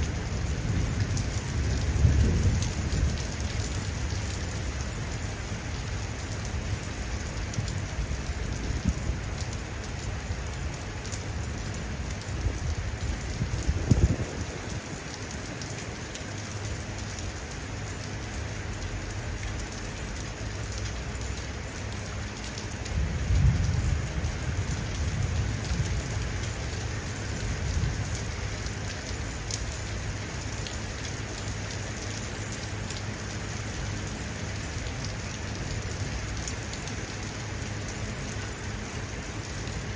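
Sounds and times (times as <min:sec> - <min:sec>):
thunder rumbling: 0:00.0 - 0:04.1, 0:12.4 - 0:15.1, 0:22.9 - 0:28.3
heavy rain pattering: 0:00.0 - 0:39.9.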